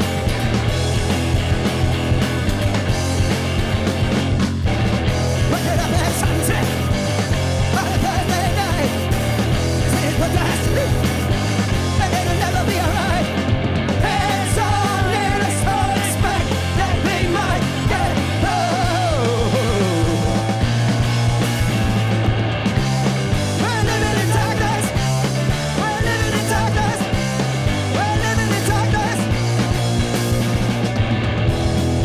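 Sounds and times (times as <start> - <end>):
live rock band playing: 0.0 - 32.0
steady bass line: 0.0 - 32.0
person singing: 12.0 - 13.3, 14.0 - 20.6, 23.6 - 25.0, 25.8 - 27.2, 27.9 - 29.3.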